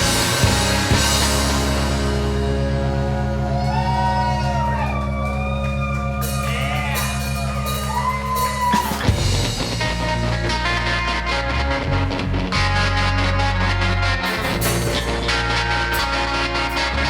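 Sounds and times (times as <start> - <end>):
high gliding bending notes: 0.0 - 17.0
low drone with fast pulse: 0.0 - 17.0
rock band playing live: 0.0 - 17.0.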